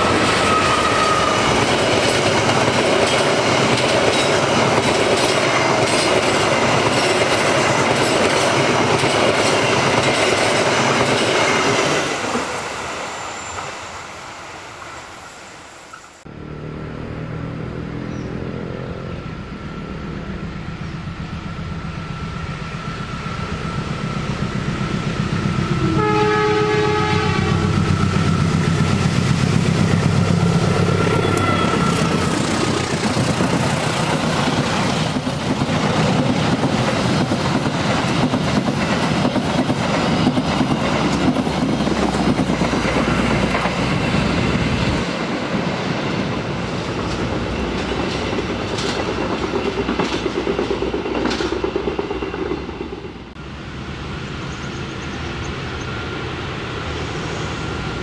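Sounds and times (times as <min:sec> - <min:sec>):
clickety-clack of wheels: 0:01.2 - 0:12.5, 0:31.2 - 0:53.1
locomotive engine rumbling: 0:16.2 - 0:58.0
locomotive horn blast: 0:25.7 - 0:27.9, 0:30.5 - 0:32.3.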